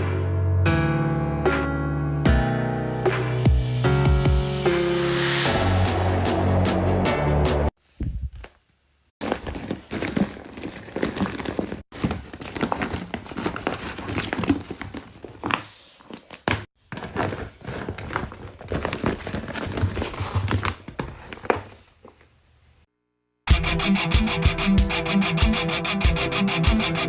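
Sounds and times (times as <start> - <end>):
paper and tape crinkling: 9.2 - 22.3.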